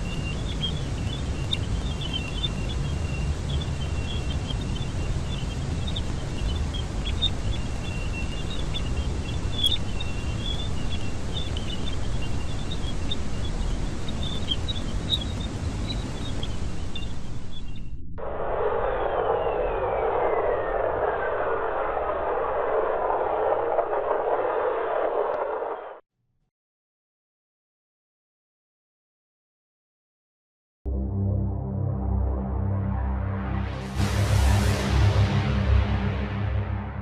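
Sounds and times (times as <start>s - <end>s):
low rumbling hiss: 0.0s - 25.8s
high chirps and crackles: 0.0s - 25.9s.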